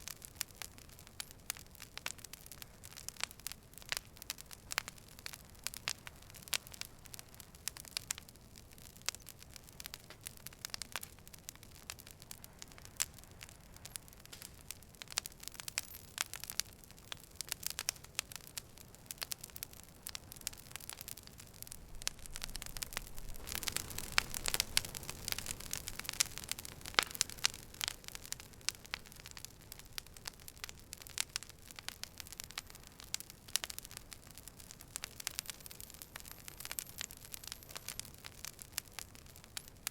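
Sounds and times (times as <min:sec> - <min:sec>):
campfire crackling and popping: 0:00.0 - 0:39.9
flames rushing: 0:20.0 - 0:39.9.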